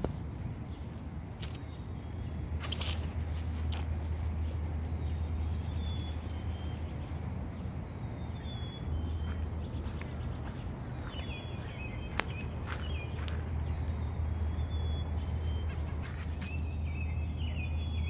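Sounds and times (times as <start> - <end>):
high bird chirps: 8.0 - 18.0.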